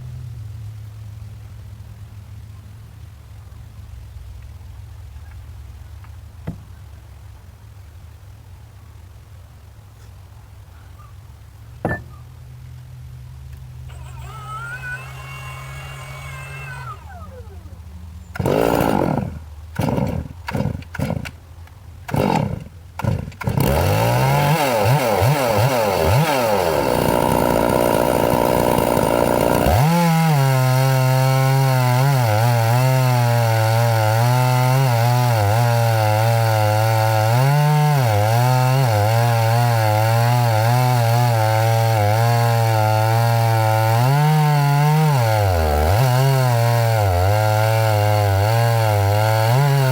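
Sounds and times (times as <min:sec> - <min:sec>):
chainsaw running and revving: 0:13.9 - 0:17.7, 0:18.3 - 0:21.4, 0:22.1 - 0:49.9.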